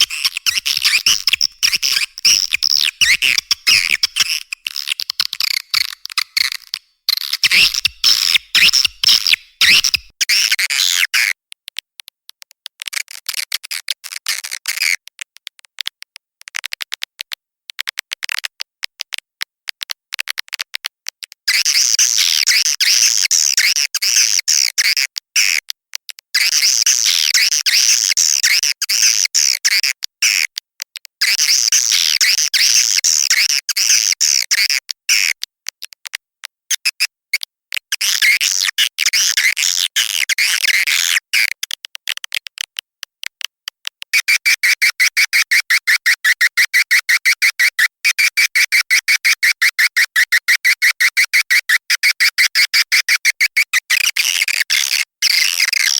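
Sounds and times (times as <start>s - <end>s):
swiftlets twittering chirps: 0.0s - 10.0s.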